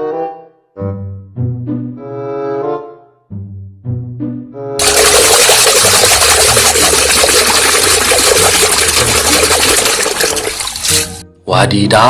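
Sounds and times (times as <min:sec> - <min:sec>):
water rushing and splashing: 0:04.8 - 0:11.2.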